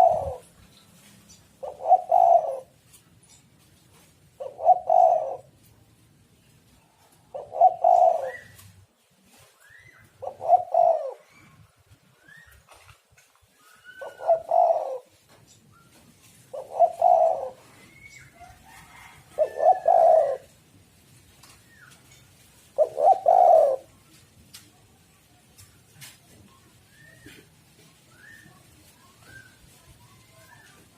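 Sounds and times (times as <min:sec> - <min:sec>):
dove cooing: 0:00.0 - 0:00.6, 0:01.6 - 0:02.8, 0:04.3 - 0:05.6, 0:07.3 - 0:08.6, 0:09.7 - 0:11.6, 0:13.6 - 0:15.2, 0:16.2 - 0:20.6, 0:22.6 - 0:23.9
small birds chirping: 0:00.0 - 0:05.4, 0:06.3 - 0:18.5.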